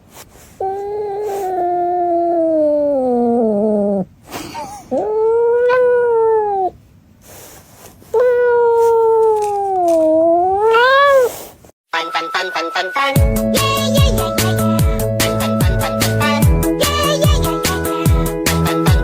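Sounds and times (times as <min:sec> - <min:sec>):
cat yowling: 0:00.6 - 0:06.8, 0:08.1 - 0:11.4.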